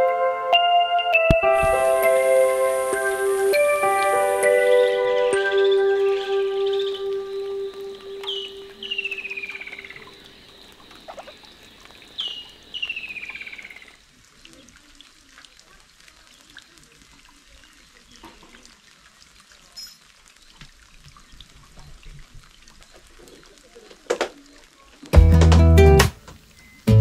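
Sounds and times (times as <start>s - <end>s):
light rain patter: 0.0s - 27.0s
dripping water: 1.1s - 25.2s
bird trilling call: 4.2s - 13.9s.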